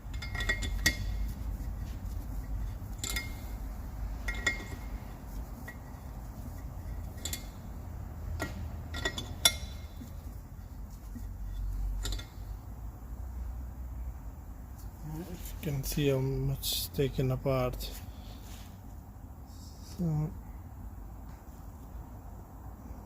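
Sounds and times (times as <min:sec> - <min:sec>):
metal tool clinking and tapping: 0:00.0 - 0:02.0, 0:02.6 - 0:05.0, 0:05.6 - 0:07.7, 0:08.3 - 0:10.4, 0:11.1 - 0:12.6
low steady hum: 0:00.0 - 0:23.0.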